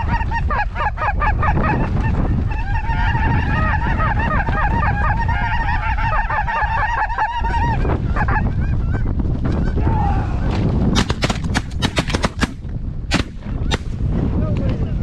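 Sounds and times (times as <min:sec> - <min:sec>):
geese honking: 0:00.0 - 0:09.9
wind on microphone: 0:00.0 - 0:15.0.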